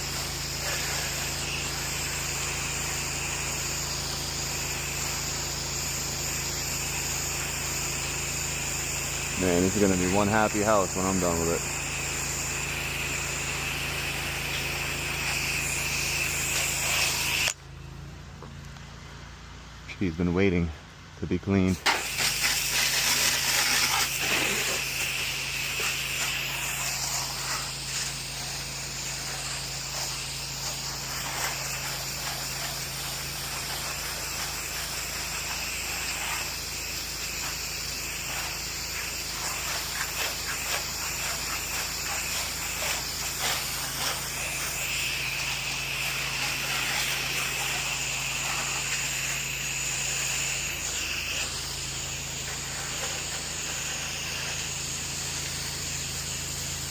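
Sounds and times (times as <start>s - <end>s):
water spray hissing: 0.0s - 17.6s, 21.7s - 56.9s
pressure washer engine hum: 0.0s - 56.9s.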